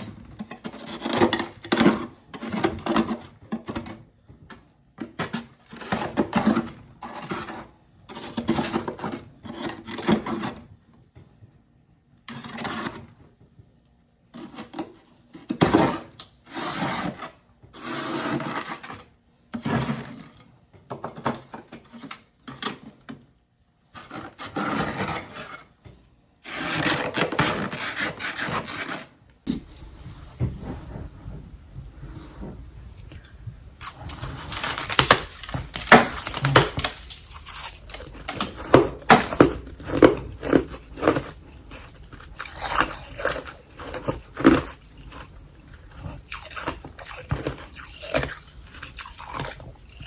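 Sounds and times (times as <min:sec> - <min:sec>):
ice chunks crunching between teeth: 0:33.8 - 0:50.0.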